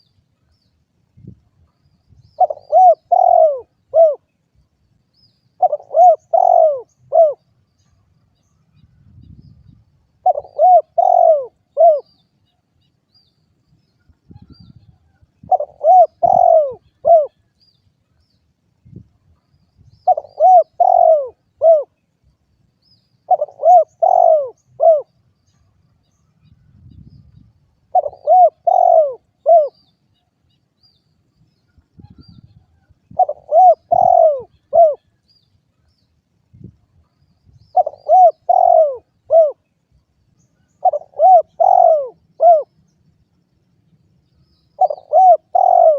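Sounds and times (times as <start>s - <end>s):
dove cooing: 2.4s - 4.3s, 5.6s - 7.4s, 10.2s - 12.2s, 15.4s - 17.4s, 20.0s - 22.0s, 23.3s - 25.2s, 27.9s - 29.8s, 33.1s - 35.1s, 37.7s - 39.7s, 40.8s - 42.8s, 44.8s - 45.9s.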